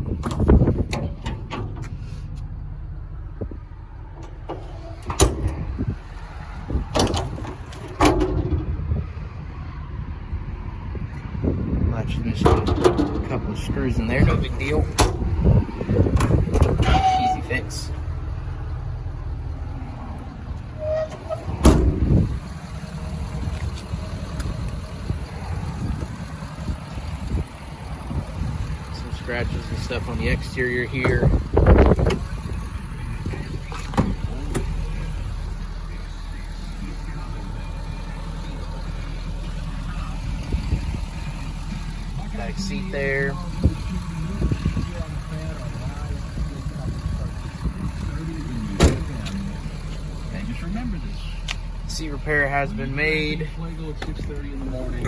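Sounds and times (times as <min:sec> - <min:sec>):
low rumble: 0:00.0 - 0:55.0
metal clunks and clicks: 0:00.2 - 0:02.5, 0:04.1 - 0:05.9, 0:06.8 - 0:08.8, 0:12.4 - 0:13.5, 0:14.9 - 0:17.5, 0:20.2 - 0:22.3, 0:48.8 - 0:49.3
heavy thump: 0:21.4 - 0:22.4, 0:48.8 - 0:49.2.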